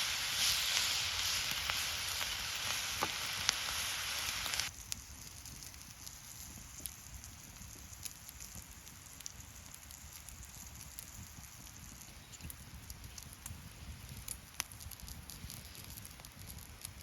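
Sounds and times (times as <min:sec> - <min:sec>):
food sizzling in a pan: 0:00.0 - 0:12.7
campfire crackling and popping: 0:00.0 - 0:17.0.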